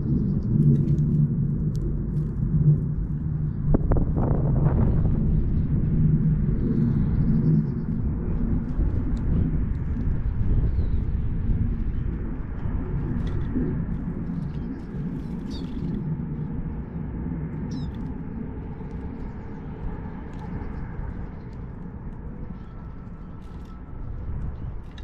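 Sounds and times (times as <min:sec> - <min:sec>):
low rumble: 0:00.0 - 0:25.0
high bird chirps: 0:15.4 - 0:15.8.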